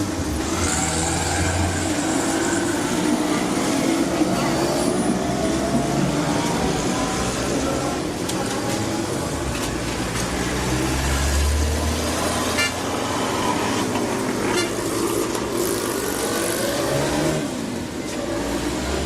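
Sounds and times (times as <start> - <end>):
traffic noise: 0.0 - 19.0.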